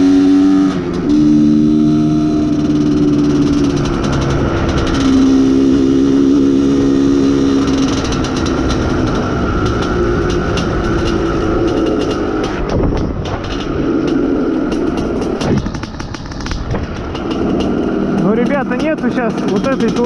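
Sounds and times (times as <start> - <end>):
two-stroke motorcycle engine running: 0.0 - 20.0
sharp ticks: 7.4 - 20.0.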